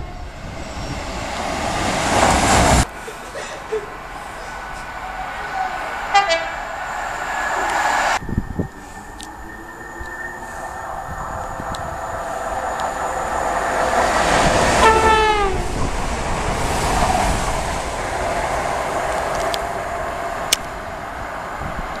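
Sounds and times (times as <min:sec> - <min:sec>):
train rushing past: 0:00.0 - 0:22.0
train horn blast: 0:06.1 - 0:06.7, 0:14.8 - 0:15.7.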